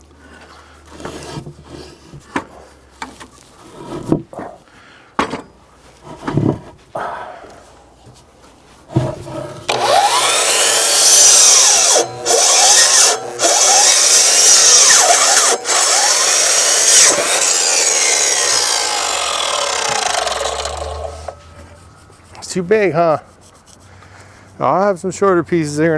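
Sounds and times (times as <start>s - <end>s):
saw cutting wood: 9.7s - 23.9s.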